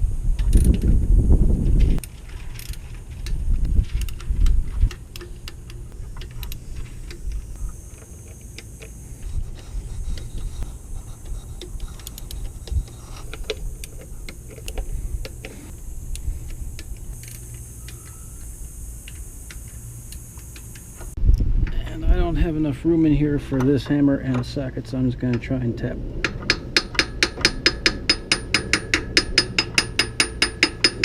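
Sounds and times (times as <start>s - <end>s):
metallic clicks of tools: 2.0s - 9.3s, 10.1s - 20.9s, 26.2s - 31.0s.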